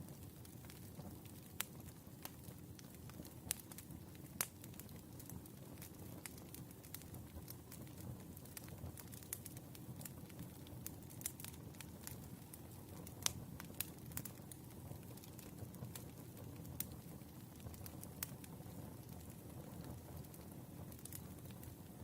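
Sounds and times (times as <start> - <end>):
firewood crackling and popping: 0.0 - 22.0
low steady fire rumble: 0.0 - 22.0.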